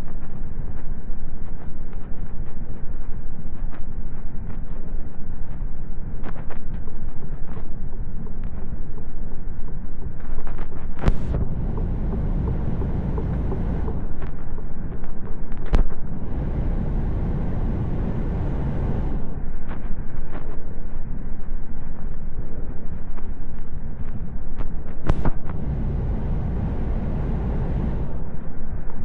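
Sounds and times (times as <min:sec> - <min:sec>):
truck rumbling: 0:11.1 - 0:14.1, 0:16.2 - 0:19.2, 0:25.1 - 0:28.2.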